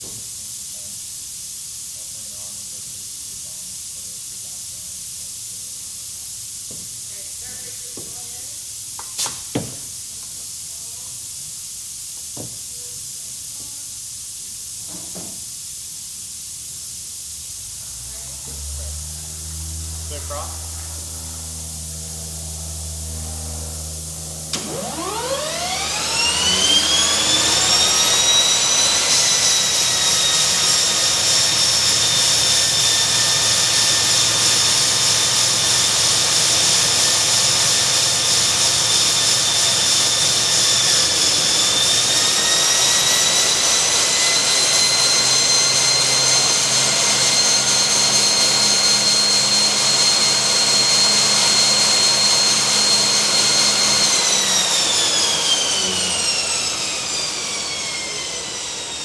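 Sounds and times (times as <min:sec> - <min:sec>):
turboprop engine whine: 0:17.2 - 0:59.0.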